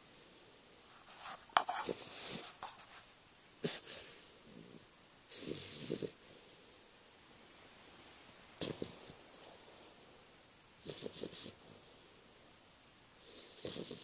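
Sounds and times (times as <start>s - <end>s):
puppy snoring: 3.6s - 6.5s, 8.6s - 10.0s, 10.8s - 12.2s, 13.2s - 14.0s.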